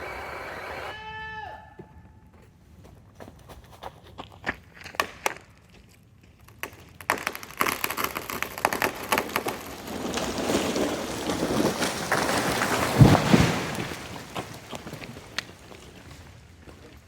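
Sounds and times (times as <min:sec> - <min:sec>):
wood cracking and splintering: 0:04.8 - 0:17.0
branches and foliage thrashing: 0:06.6 - 0:17.0.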